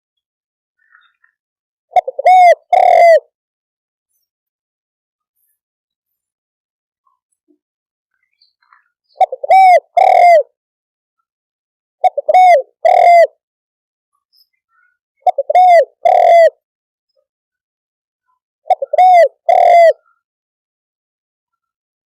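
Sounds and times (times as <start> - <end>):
dove cooing: 1.9 - 3.3, 9.2 - 10.5, 12.0 - 13.4, 15.2 - 16.6, 18.7 - 20.0.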